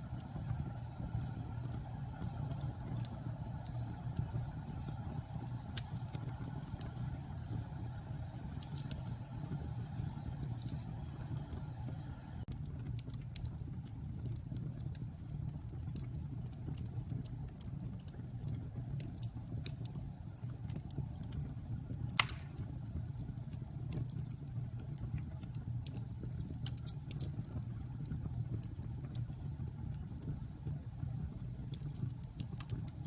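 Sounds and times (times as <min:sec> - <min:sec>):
bonfire rumbling and crackling: 0:00.0 - 0:33.0
sharp loud pop: 0:22.2 - 0:22.6.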